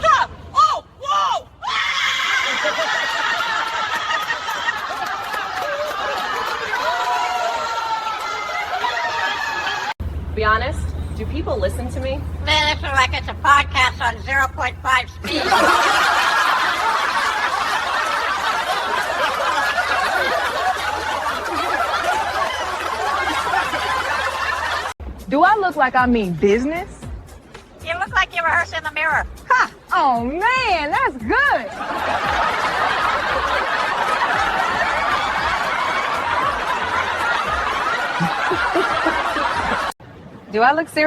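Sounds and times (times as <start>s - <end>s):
crowd laughing: 2.2s - 10.0s, 15.2s - 25.0s, 31.3s - 40.0s.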